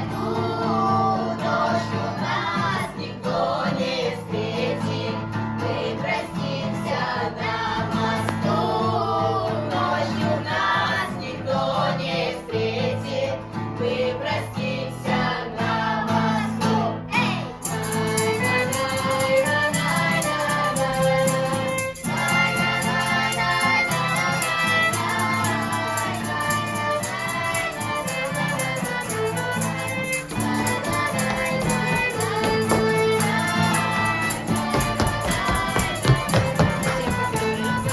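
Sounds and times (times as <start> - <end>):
group of voices singing: 0.0 - 37.9
instrumental accompaniment: 17.5 - 37.9.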